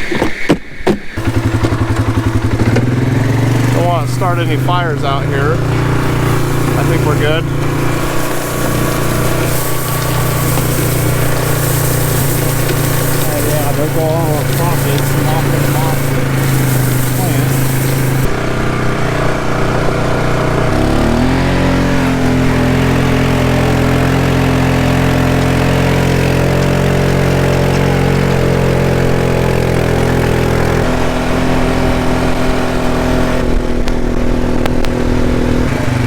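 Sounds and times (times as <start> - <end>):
vehicle engine running: 1.2 - 36.0.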